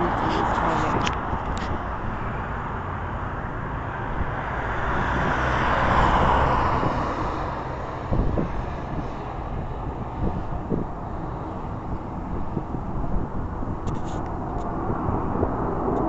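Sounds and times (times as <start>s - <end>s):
jet engine rumble: 0.0s - 16.0s
wind buffeting microphone: 0.0s - 16.0s.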